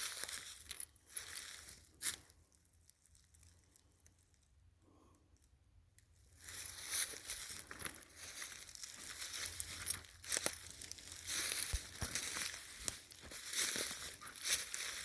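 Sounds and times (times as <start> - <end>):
footsteps crunching dry leaves: 0.0 - 2.2, 6.4 - 15.0.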